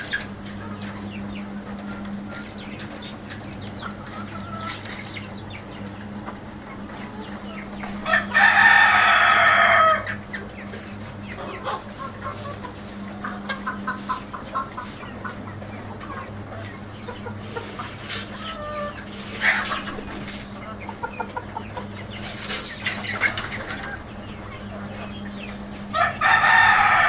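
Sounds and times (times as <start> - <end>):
chickens clucking softly: 0.0 - 27.0
rooster crowing: 6.8 - 10.3, 16.0 - 22.2, 25.8 - 27.0.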